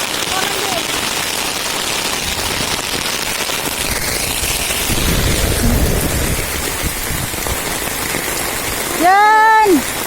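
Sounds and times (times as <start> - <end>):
heavy rain hissing: 0.0 - 10.0
low rumble: 4.2 - 7.9.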